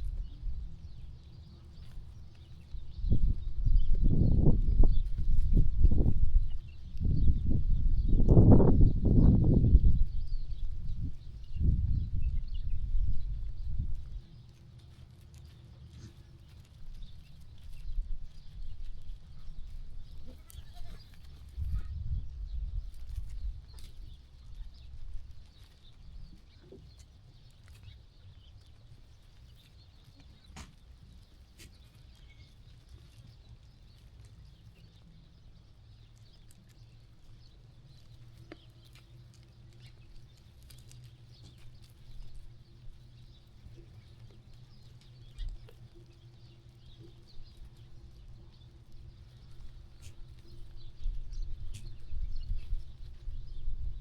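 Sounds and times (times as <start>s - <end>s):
faint bird calls: 20.1s - 22.0s
low rumble: 21.6s - 23.7s
sheep knocks and rustles: 22.8s - 35.0s.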